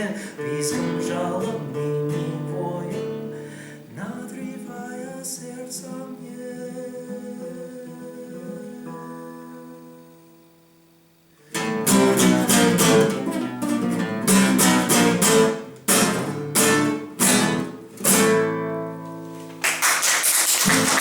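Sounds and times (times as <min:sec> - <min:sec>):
flamenco acoustic guitar strumming: 0:00.0 - 0:10.5, 0:11.4 - 0:19.8
applause: 0:19.4 - 0:21.0.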